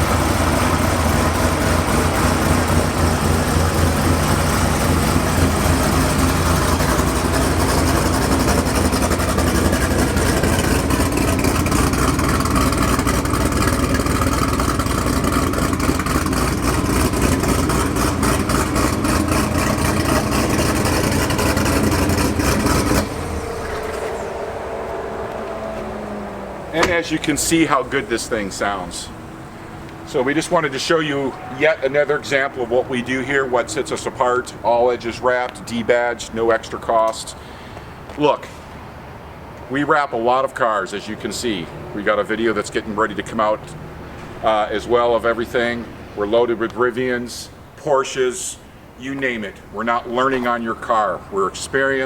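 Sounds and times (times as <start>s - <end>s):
supercharged car engine running: 0.0s - 36.9s.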